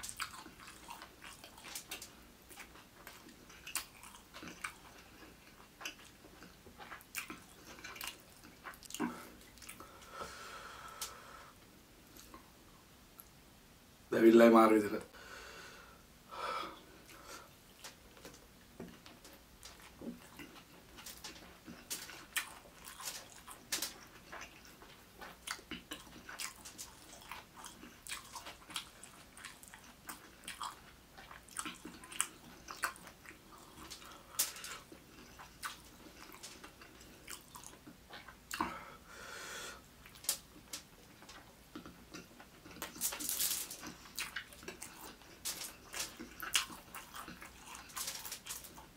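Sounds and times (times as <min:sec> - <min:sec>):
chewing with wet mouth clicks: 0:00.0 - 0:09.9, 0:17.1 - 0:38.8, 0:40.0 - 0:43.1, 0:43.8 - 0:48.9
breathy hissing: 0:09.1 - 0:11.6, 0:15.2 - 0:17.5, 0:38.7 - 0:39.8.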